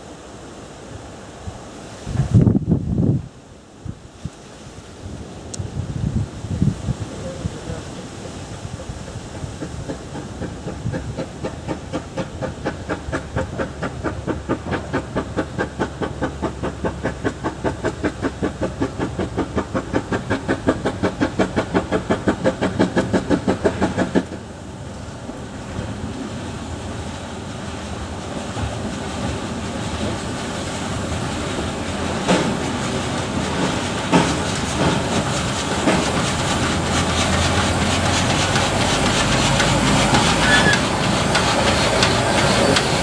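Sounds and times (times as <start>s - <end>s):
train running rumble: 0.0s - 43.0s
steam locomotive exhaust chuffs: 6.8s - 43.0s.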